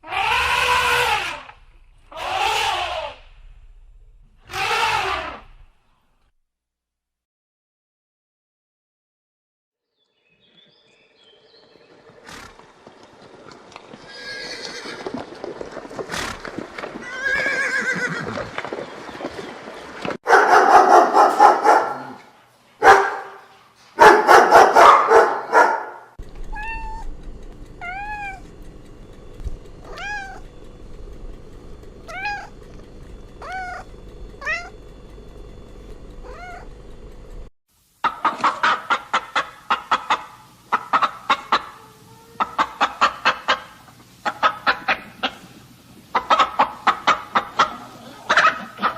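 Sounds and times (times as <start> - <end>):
loud animal calls: 0.0 - 3.6, 4.4 - 5.6, 33.3 - 34.8, 38.0 - 48.9
rough animal calls: 0.0 - 3.6, 4.4 - 5.8, 27.8 - 34.9
short rising-and-falling cries: 0.0 - 3.7, 4.4 - 5.7, 17.0 - 18.2, 33.4 - 34.8
steady low hum: 0.0 - 4.5, 20.5 - 37.5.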